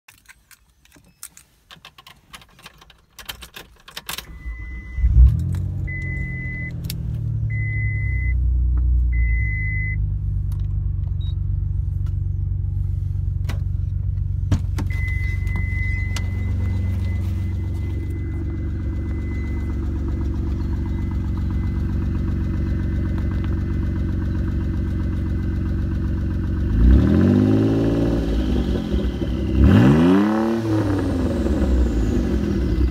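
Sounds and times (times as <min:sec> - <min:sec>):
car engine starting and idling: 0:00.2 - 0:32.9
high beeps: 0:04.3 - 0:05.2, 0:05.8 - 0:06.8, 0:07.5 - 0:08.4, 0:09.1 - 0:10.0, 0:14.9 - 0:23.4
engine revving: 0:04.3 - 0:08.6, 0:14.9 - 0:32.9.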